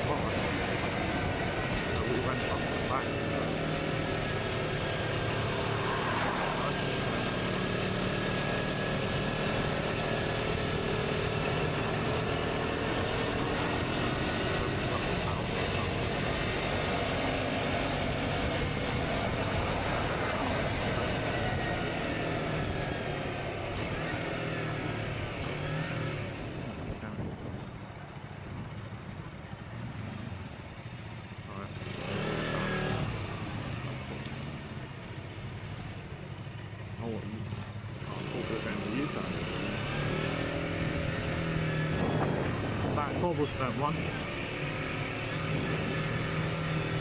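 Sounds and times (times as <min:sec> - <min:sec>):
motorcycle engine running: 0:00.0 - 0:47.0
wind rush on microphone: 0:11.8 - 0:24.1, 0:25.3 - 0:29.3, 0:40.7 - 0:47.0.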